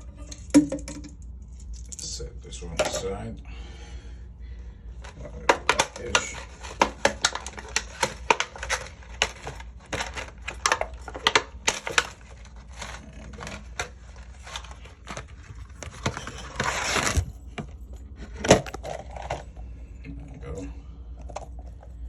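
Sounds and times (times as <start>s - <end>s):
plastic rustling crinkle: 5.7s - 19.7s.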